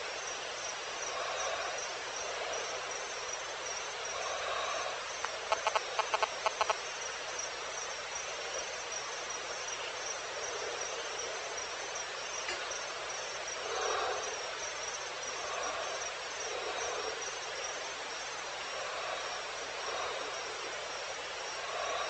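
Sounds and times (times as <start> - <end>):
crickets chirping: 0.0 - 22.0
insect noise hiss: 0.0 - 22.0
sharp rapid animal calls: 5.2 - 6.8.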